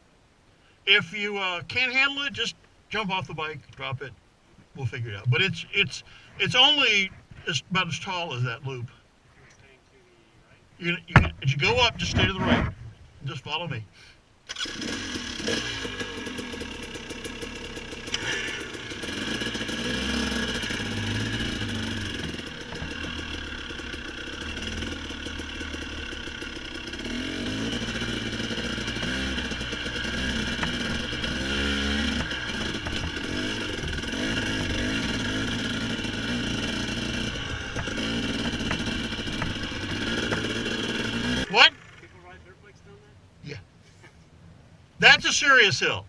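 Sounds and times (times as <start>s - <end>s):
dirt bike engine revving: 14.5s - 42.2s.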